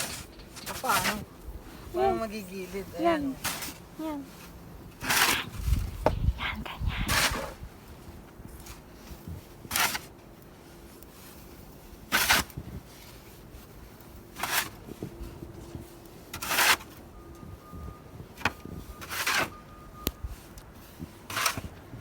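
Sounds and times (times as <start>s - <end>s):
snow shovel crunching snow: 0.0s - 1.2s, 2.0s - 5.6s, 8.6s - 10.1s, 10.8s - 13.8s, 14.4s - 14.8s, 16.4s - 16.9s, 20.8s - 21.7s.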